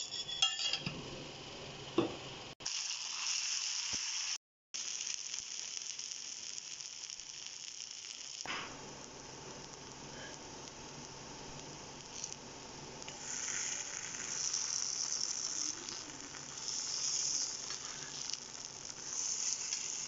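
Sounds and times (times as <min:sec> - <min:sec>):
banana slices sizzling in oil: 0:02.6 - 0:20.0.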